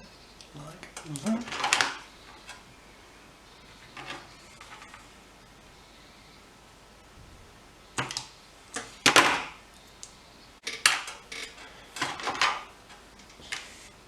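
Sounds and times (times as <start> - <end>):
tools scraping and clacking: 0.4 - 2.7, 3.6 - 5.2, 10.6 - 14.0.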